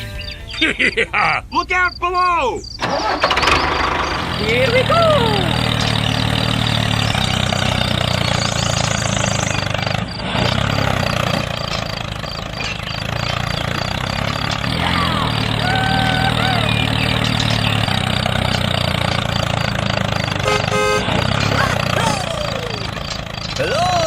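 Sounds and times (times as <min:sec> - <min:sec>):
engine running: 0:02.6 - 0:24.0.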